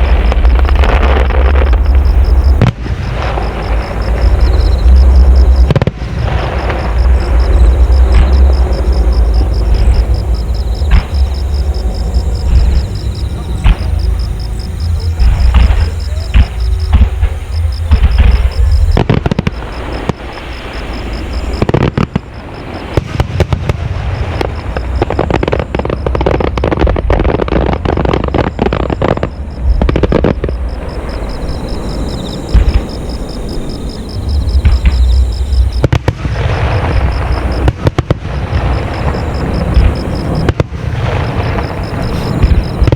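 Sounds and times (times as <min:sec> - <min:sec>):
firework booms: 0:00.0 - 0:42.9
fireworks bursting and crackling: 0:00.0 - 0:42.9.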